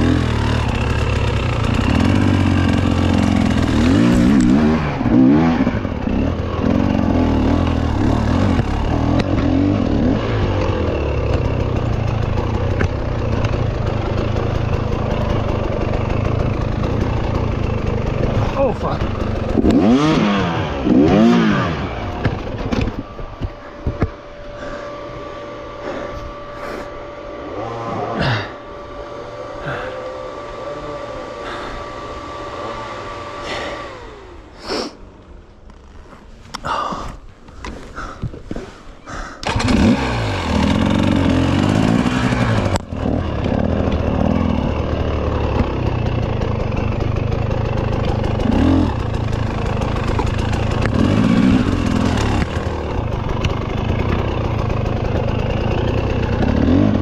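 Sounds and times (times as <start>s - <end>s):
dirt bike engine revving: 0.0s - 36.8s, 39.1s - 57.0s
steady whine: 0.0s - 57.0s.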